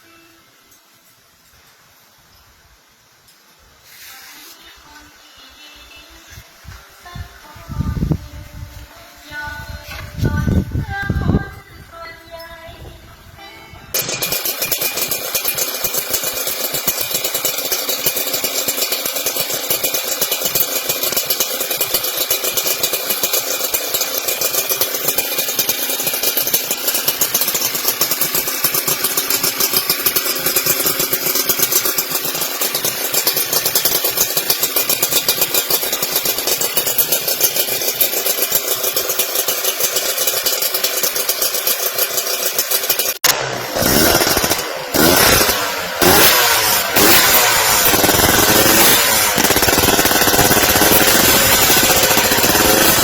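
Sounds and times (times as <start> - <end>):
motorcycle engine running: 3.8 - 53.0.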